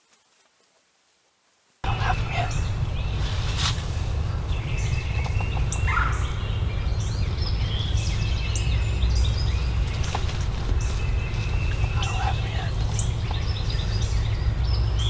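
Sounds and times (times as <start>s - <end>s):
turkey gobbling: 1.8s - 2.9s, 9.7s - 13.9s
songbird chirps: 1.8s - 15.0s
steady low rumble: 1.8s - 15.0s.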